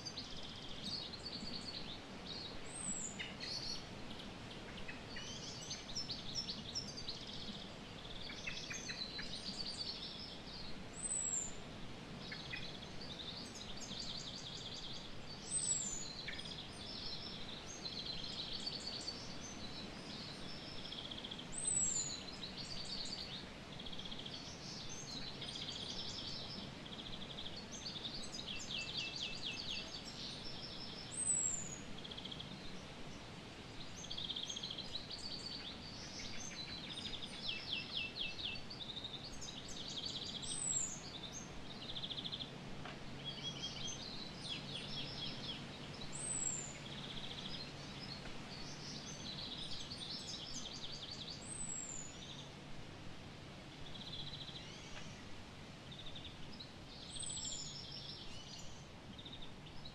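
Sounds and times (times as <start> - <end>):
faint even hiss: 0.0 - 59.9
birds chirping and trilling: 33.7 - 52.6, 53.8 - 59.9.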